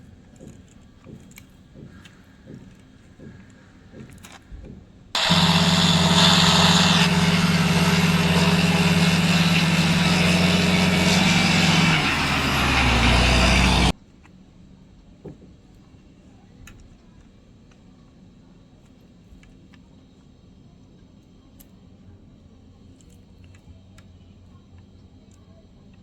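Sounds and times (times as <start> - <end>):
truck engine running: 5.2 - 13.9.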